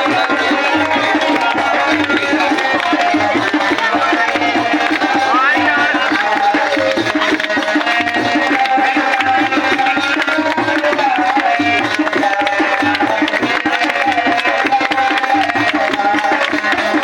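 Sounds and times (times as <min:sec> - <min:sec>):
devotional music: 0:00.0 - 0:17.0
tabla and drum beat: 0:00.0 - 0:17.0.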